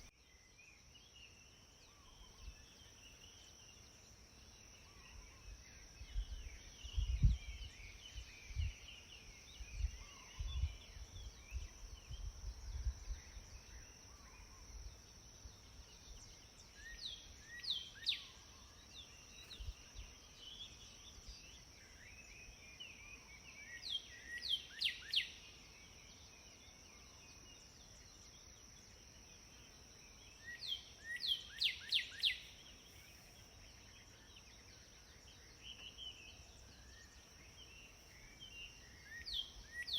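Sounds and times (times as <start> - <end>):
soft bird chirps: 0.0 - 39.9
songbirds whistling: 16.0 - 26.2, 30.3 - 39.9.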